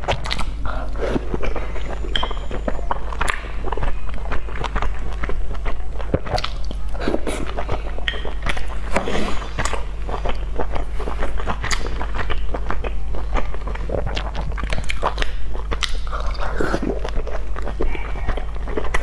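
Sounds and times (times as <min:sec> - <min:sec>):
steady low hum: 0:00.0 - 0:19.0
wet chewing sounds: 0:00.0 - 0:19.0.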